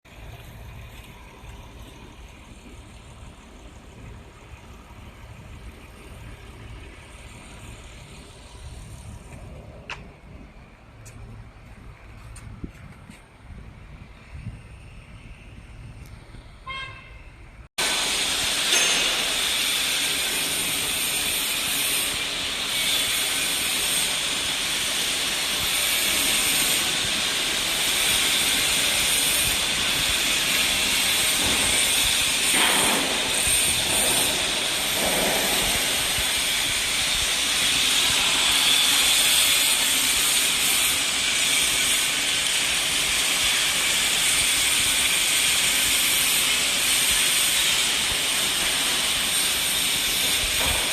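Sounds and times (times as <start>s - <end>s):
machinery loud steady hiss: 17.8s - 50.9s.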